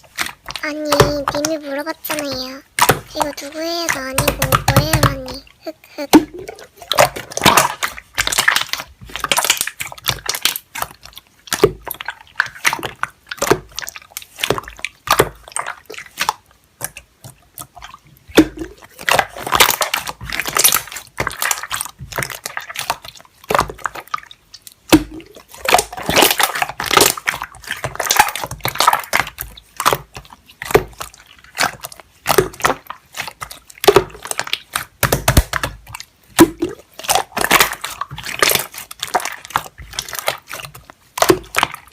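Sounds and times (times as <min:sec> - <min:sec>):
slime squelching by hand: 0:00.0 - 0:41.9.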